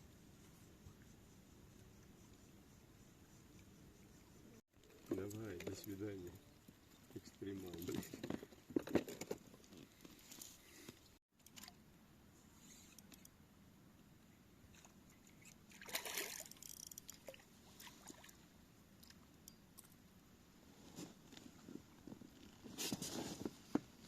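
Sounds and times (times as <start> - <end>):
soft splash: 15.7 - 16.6, 17.2 - 18.4.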